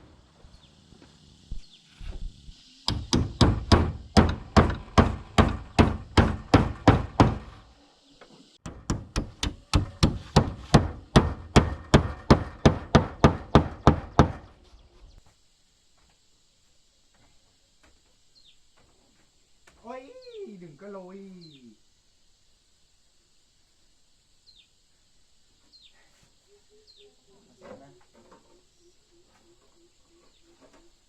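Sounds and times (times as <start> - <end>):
rapid hammer blows on wood: 2.9 - 7.6, 8.6 - 14.5.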